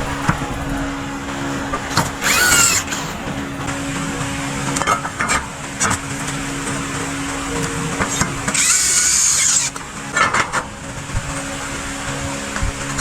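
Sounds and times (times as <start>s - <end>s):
power tool motor hum: 0.0s - 4.4s, 8.1s - 9.8s
high-pitched whine: 0.0s - 13.0s.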